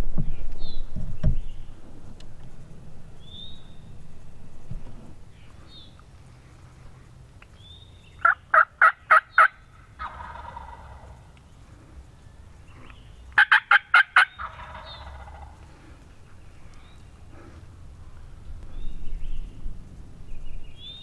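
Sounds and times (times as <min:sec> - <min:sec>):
turkey yelps: 0:08.2 - 0:11.2, 0:13.4 - 0:15.6
turkey gobbling: 0:08.2 - 0:11.3, 0:13.4 - 0:15.7.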